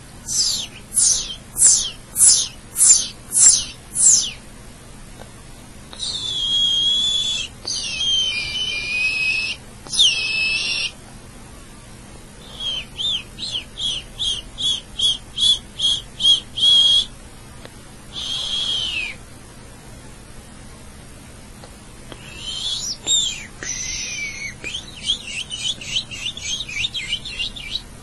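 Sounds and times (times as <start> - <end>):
person whistling bird calls: 0.2 - 4.4, 5.9 - 11.0, 12.4 - 17.1, 18.1 - 19.2, 22.2 - 27.8.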